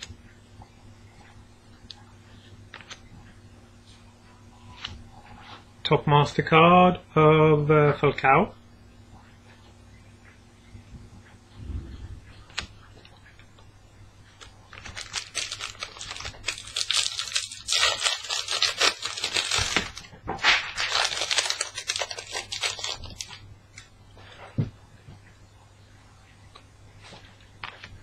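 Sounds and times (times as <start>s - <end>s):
wrapper crinkling: 14.4s - 23.4s.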